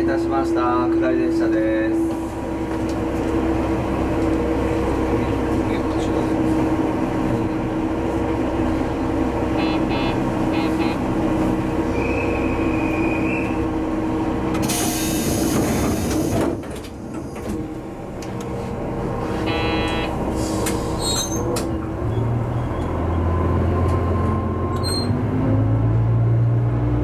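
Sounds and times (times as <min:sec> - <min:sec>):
diesel engine idling: 0:03.4 - 0:15.4, 0:16.9 - 0:25.4.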